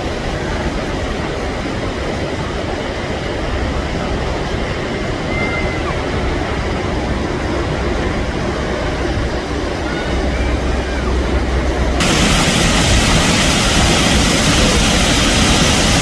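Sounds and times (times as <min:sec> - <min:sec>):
waterfall roaring: 0:00.0 - 0:16.0
low rumble: 0:10.6 - 0:16.0.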